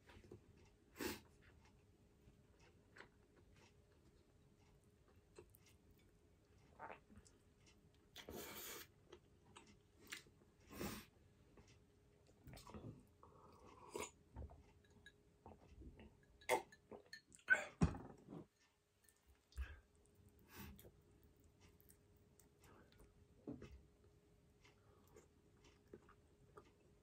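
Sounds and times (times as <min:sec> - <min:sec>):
chewing and mouth sounds: 0:05.1 - 0:10.4, 0:19.0 - 0:23.8, 0:24.6 - 0:27.0.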